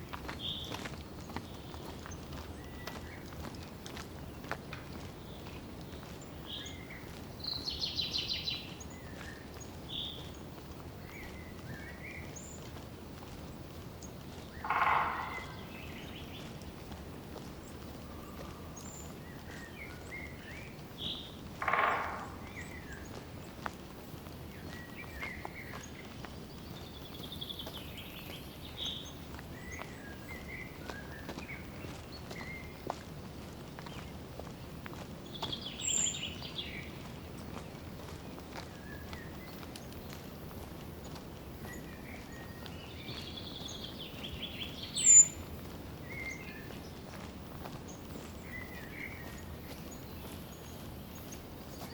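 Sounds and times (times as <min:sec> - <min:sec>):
forest birds calling: 0:00.0 - 0:33.1, 0:33.7 - 0:51.9
footsteps on trail: 0:00.0 - 0:51.9
bird trilling: 0:14.6 - 0:16.2.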